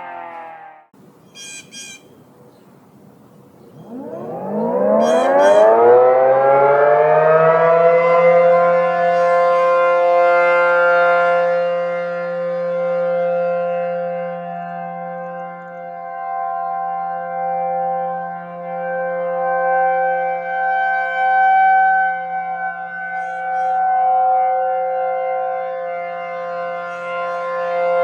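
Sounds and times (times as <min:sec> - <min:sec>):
high chirps: 0:01.2 - 0:02.2, 0:03.6 - 0:06.0, 0:22.7 - 0:23.8
warning siren winding up: 0:03.7 - 0:11.8, 0:12.4 - 0:28.0.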